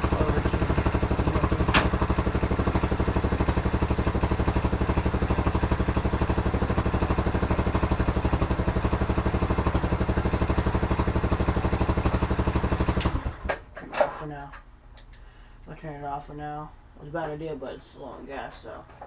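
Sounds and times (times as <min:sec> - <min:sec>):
pit bike engine running: 0:00.0 - 0:13.5.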